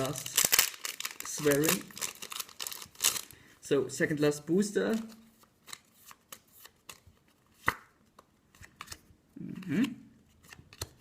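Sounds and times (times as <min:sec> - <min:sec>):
cards handled with light clicks: 0:04.9 - 0:09.1, 0:10.3 - 0:11.0.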